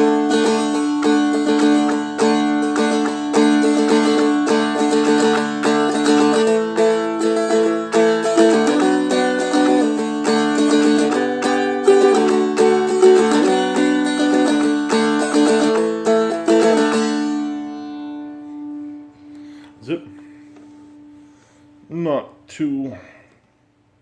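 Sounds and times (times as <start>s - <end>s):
dulcimer strummed: 0.0s - 20.0s.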